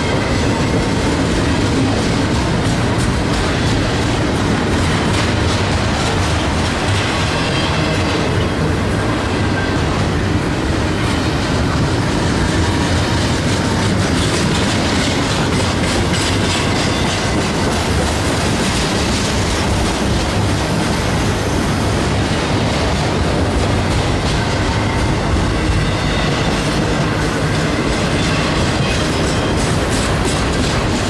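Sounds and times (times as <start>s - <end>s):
freight train wheels clacking: 0.0s - 31.0s.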